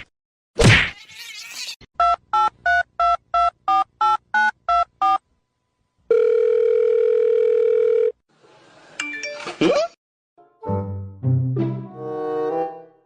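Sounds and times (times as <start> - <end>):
phone line tone: 6.1 - 8.2.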